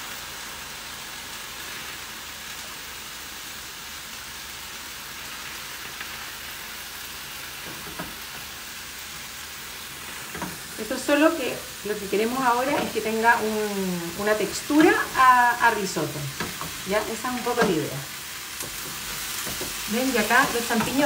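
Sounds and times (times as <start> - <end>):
food sizzling in a pan: 0.0 - 21.0
spatula taps: 16.4 - 17.8, 18.6 - 21.0.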